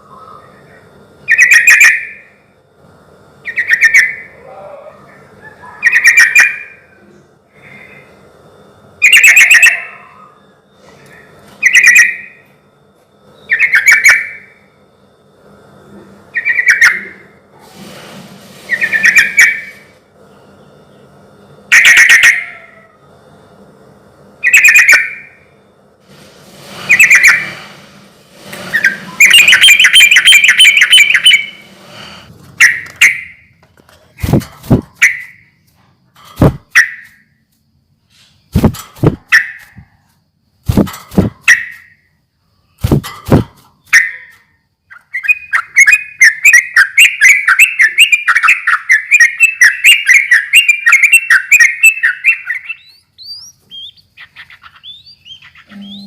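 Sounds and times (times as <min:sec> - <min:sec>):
bird chattering notes: 0:26.9 - 0:27.6, 0:28.7 - 0:31.7, 0:42.8 - 0:56.0
bird singing bubbly phrases: 0:28.8 - 0:31.6, 0:44.9 - 0:56.0.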